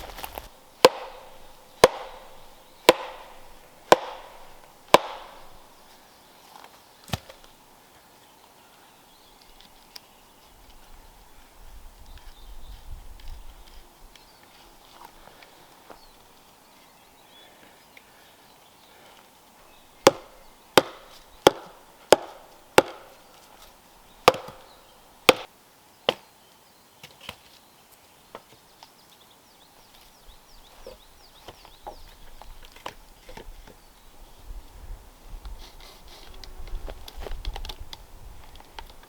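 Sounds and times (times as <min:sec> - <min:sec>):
wood being chopped: 0:00.0 - 0:05.8, 0:07.1 - 0:07.5, 0:20.0 - 0:23.5, 0:24.2 - 0:25.5.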